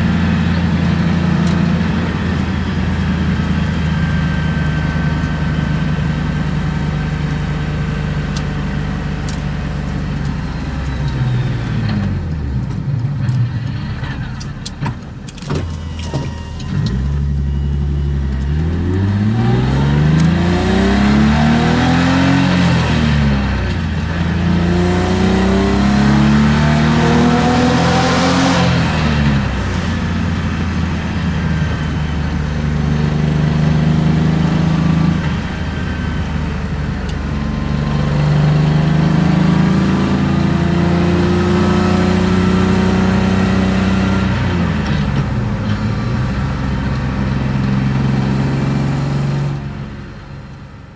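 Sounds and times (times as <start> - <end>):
car engine revving: 0.0 - 50.6.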